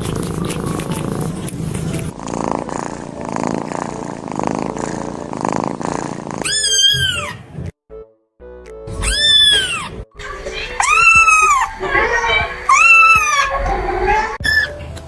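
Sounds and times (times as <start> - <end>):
cat purring: 0.0 - 6.5, 10.3 - 14.4
kitten meowing: 6.4 - 7.4, 9.0 - 10.0, 10.6 - 14.5.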